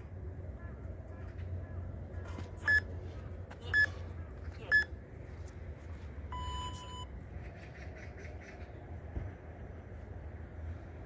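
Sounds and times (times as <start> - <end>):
steady low hum: 0.0 - 11.0
electronic timer beeping: 6.3 - 7.1.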